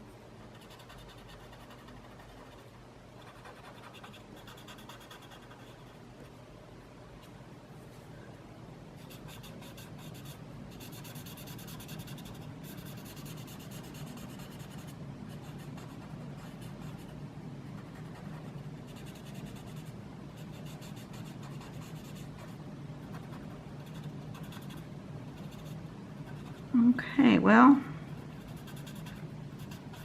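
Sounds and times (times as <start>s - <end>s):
felt-tip pen scratching on paper: 9.1s - 17.1s, 23.0s - 24.8s, 28.2s - 30.0s.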